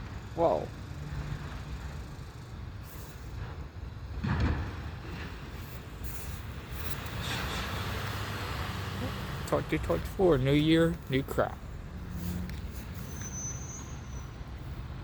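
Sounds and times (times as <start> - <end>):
diesel engine running: 0.0 - 15.0
hissing noise: 5.5 - 8.5.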